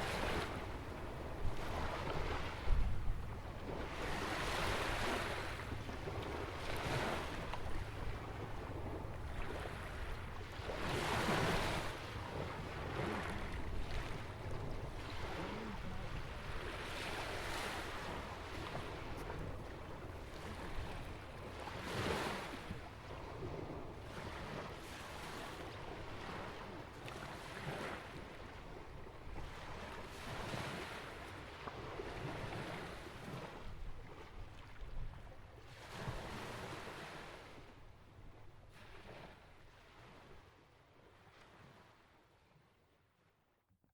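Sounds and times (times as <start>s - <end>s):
waves breaking on rocks and beach: 0.0s - 33.6s.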